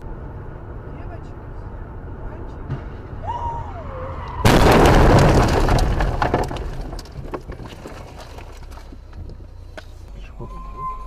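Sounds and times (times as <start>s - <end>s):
loud vehicle impact: 2.6s - 3.6s, 4.2s - 9.5s
debris crunching and cracking: 4.4s - 9.8s.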